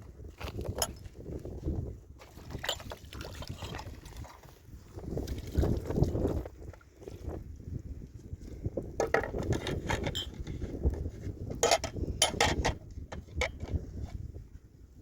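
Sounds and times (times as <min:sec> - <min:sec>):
objects knocking and clinking: 0:09.0 - 0:10.5, 0:11.6 - 0:12.8.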